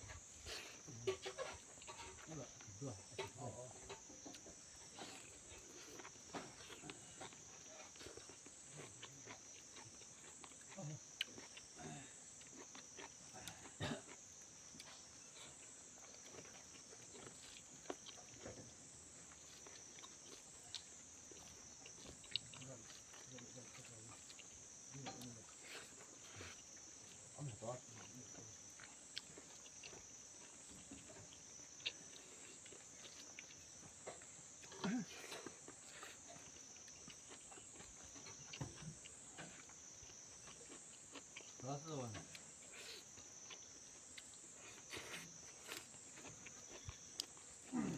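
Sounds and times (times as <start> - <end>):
crickets chirping: 0.0 - 47.9
person chewing with mouth clicks: 0.1 - 27.3, 27.9 - 47.9.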